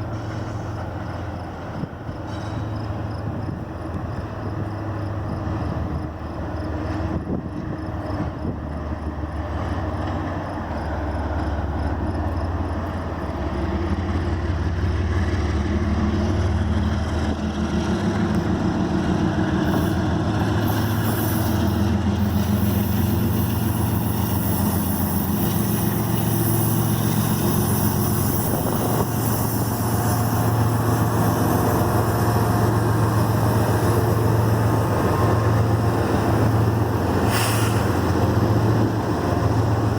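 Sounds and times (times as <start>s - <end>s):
freight train rumbling on rails: 0.0s - 39.9s.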